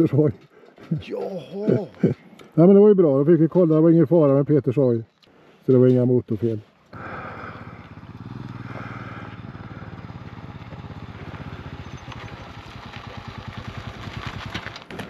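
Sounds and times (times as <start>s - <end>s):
motorcycle engine running: 7.0s - 14.8s.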